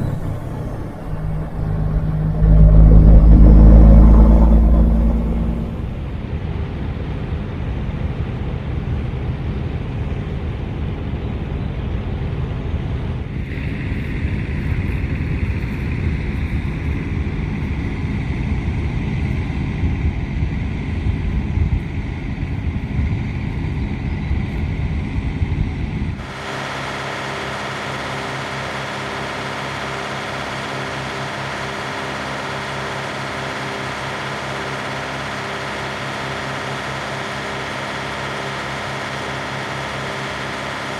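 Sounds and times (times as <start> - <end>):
high whine: 0.0 - 6.8
truck engine and road rumble: 0.0 - 40.9.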